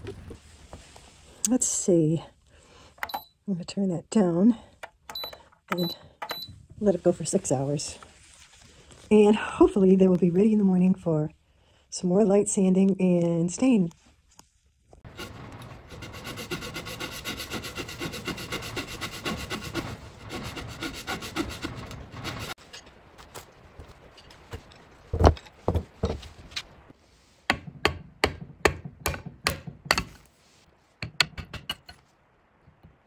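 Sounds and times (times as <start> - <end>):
wooden knocks and scrapes: 15.0 - 23.1, 24.2 - 26.8
rubbing on wood: 15.1 - 22.6.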